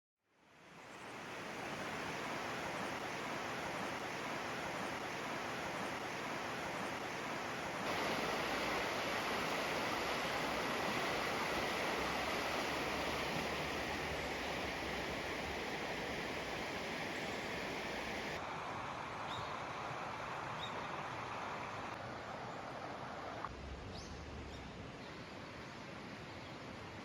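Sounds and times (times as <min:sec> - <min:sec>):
steady rushing noise: 0:07.7 - 0:19.0.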